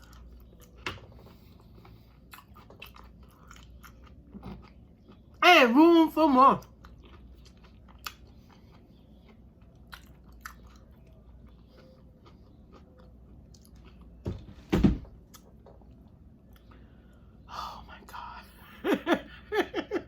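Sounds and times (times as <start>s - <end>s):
person chewing food: 0.0s - 5.4s, 6.6s - 14.4s, 15.1s - 17.4s
thump: 14.3s - 15.1s.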